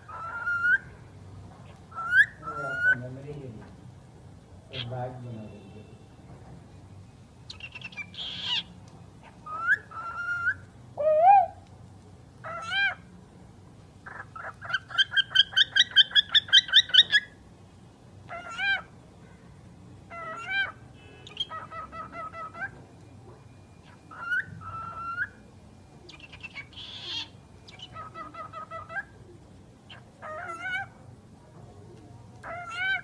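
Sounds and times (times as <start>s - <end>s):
bird calling and whistling: 0.0s - 0.9s, 1.9s - 3.0s, 7.5s - 11.6s, 14.1s - 17.4s, 20.1s - 22.8s, 23.8s - 25.5s, 26.1s - 29.2s.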